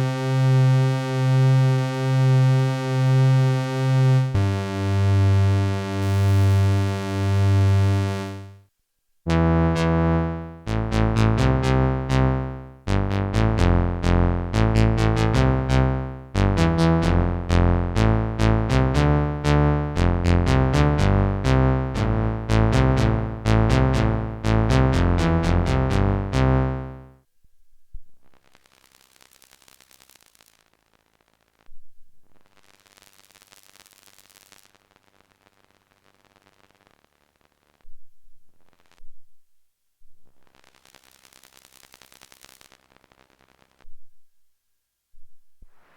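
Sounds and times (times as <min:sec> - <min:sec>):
synthesizer bass notes: 0:04.2 - 0:08.6, 0:09.3 - 0:27.1
faint hiss: 0:28.2 - 0:39.0, 0:40.3 - 0:43.9.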